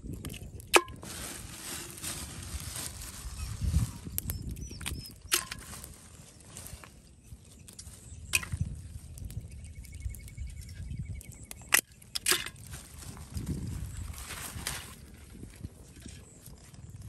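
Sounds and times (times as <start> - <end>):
plastic bag crinkling: 0.9 - 4.1.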